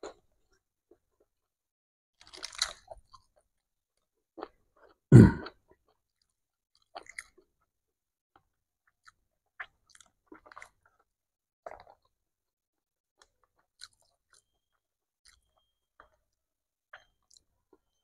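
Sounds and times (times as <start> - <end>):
chewing and crunching: 2.2 - 5.0, 5.7 - 7.7, 8.4 - 12.2, 13.2 - 18.0.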